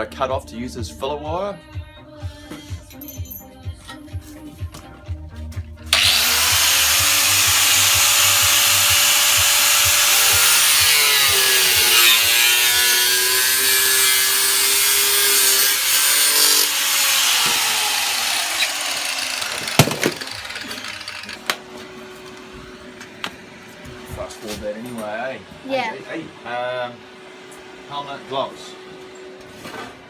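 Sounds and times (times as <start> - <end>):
angle grinder cutting metal: 5.9 - 21.6.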